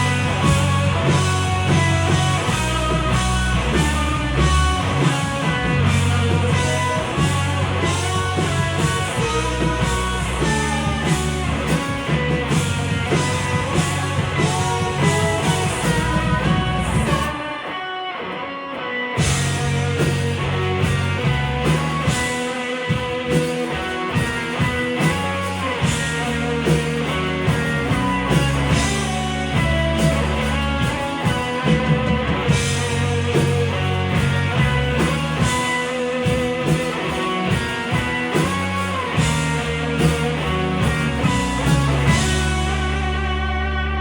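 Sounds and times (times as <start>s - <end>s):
drum kit: 0.0s - 18.0s, 19.2s - 44.0s
bass guitar: 0.0s - 44.0s
electric guitar: 0.0s - 44.0s.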